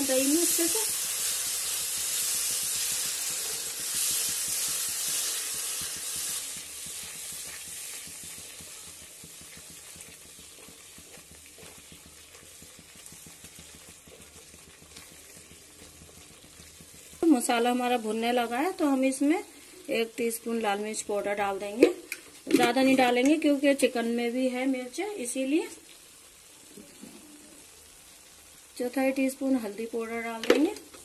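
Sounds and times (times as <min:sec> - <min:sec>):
spatula stirring in a pan: 0:00.0 - 0:19.1
spice paste sizzling in oil: 0:00.0 - 0:31.0.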